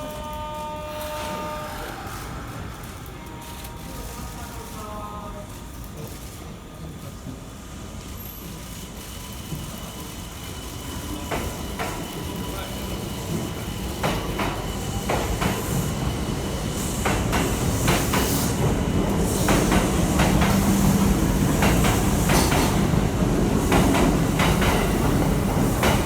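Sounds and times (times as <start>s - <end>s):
train low rumble: 0.0s - 26.0s
train wheels clacking over rail joints: 11.1s - 26.0s.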